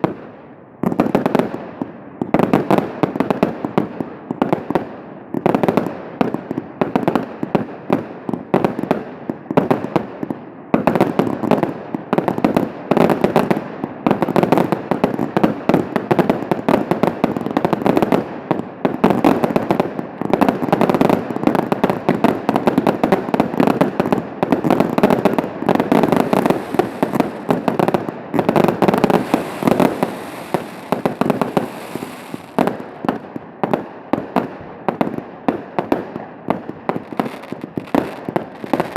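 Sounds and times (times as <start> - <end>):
fireworks bursting and crackling: 0.0 - 38.9.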